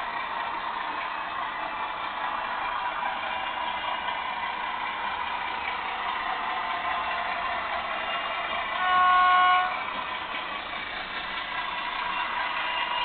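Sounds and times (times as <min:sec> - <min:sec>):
model diesel engine sound: 0:00.0 - 0:13.0
short horn blast: 0:08.8 - 0:09.9.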